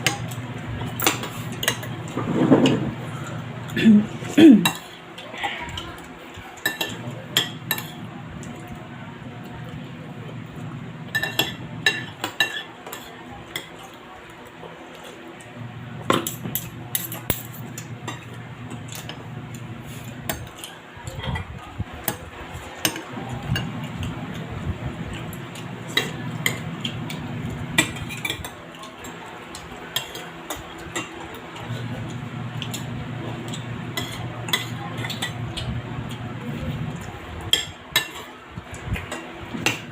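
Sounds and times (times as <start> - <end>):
low background hum: 0.0 - 39.9
cutlery clinking on plates: 11.1 - 13.9, 27.8 - 31.9, 37.0 - 38.3.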